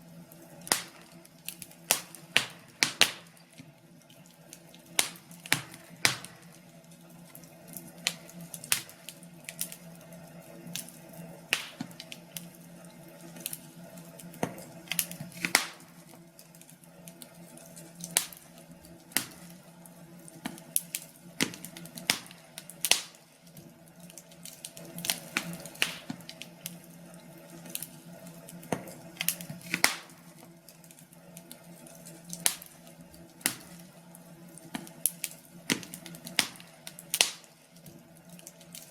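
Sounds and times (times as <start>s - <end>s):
faint steady hum: 0.0s - 38.9s
wood fire crackling: 0.0s - 38.9s.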